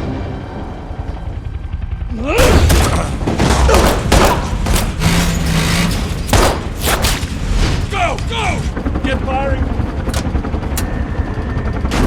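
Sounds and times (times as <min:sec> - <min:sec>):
loud bangs and thuds: 0:02.4 - 0:08.8.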